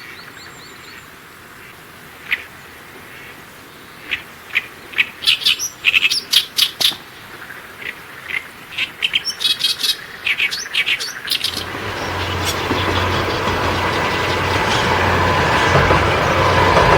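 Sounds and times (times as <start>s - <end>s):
small birds chirping: 3.7s - 16.2s.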